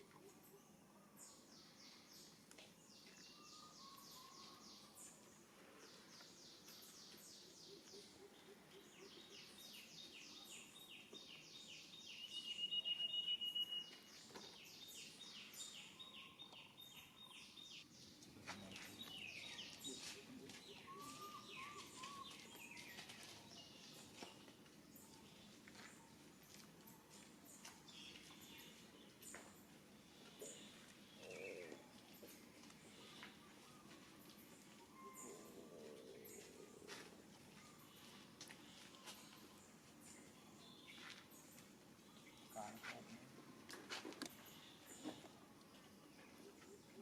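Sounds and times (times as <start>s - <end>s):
birds calling: 5.9s - 25.4s, 30.1s - 47.0s.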